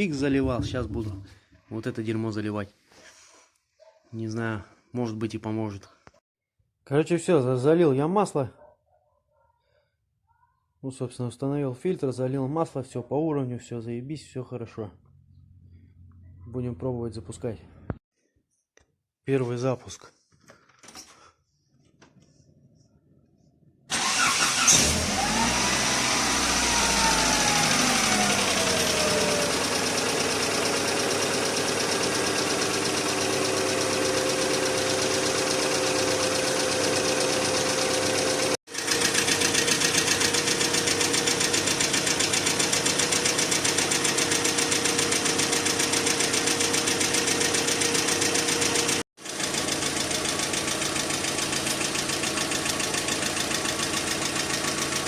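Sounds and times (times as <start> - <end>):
car engine starting and idling: 23.9 - 55.0.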